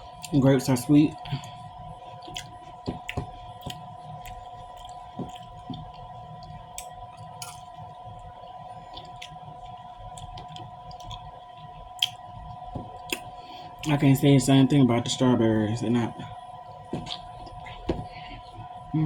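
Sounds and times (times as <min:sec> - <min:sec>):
faint hum: 0:00.0 - 0:19.0
chewing grapes: 0:01.1 - 0:14.0, 0:16.9 - 0:18.8.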